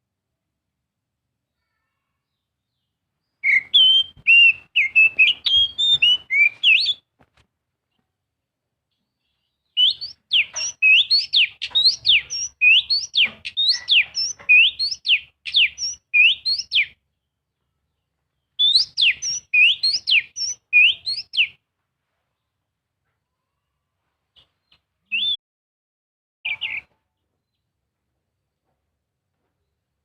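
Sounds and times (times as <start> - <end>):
bird singing whistled notes: 3.4 - 7.1, 9.7 - 17.0, 18.6 - 21.6, 25.1 - 25.4, 26.5 - 26.9.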